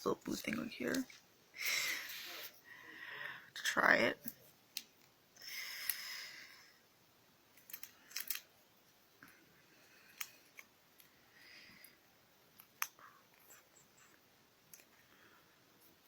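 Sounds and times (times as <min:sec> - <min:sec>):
packet clicks and crackles: 0:07.6 - 0:08.5
plastic wrapper crinkling: 0:07.6 - 0:08.5.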